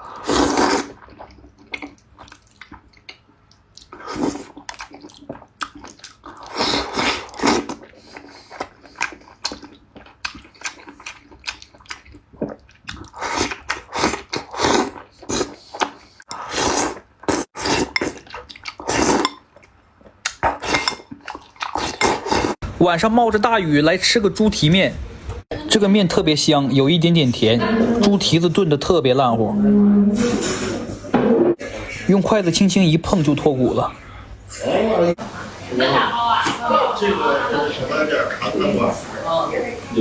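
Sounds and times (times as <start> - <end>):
person slurping noodles: 0.0 - 2.8, 3.9 - 11.4, 12.4 - 19.4, 20.4 - 22.6
chewing: 0.2 - 22.6.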